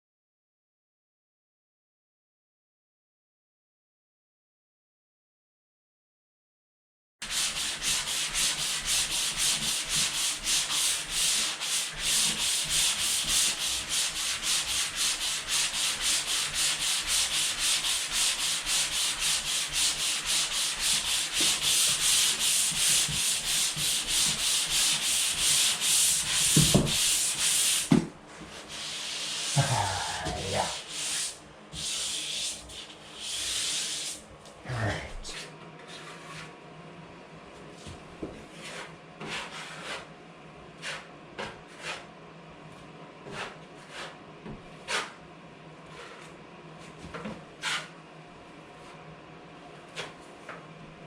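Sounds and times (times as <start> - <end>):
hand-sanding drywall compound: 7.2 - 34.2, 35.3 - 36.5, 37.8 - 42.1, 43.2 - 44.2, 44.8 - 45.2, 45.8 - 48.0.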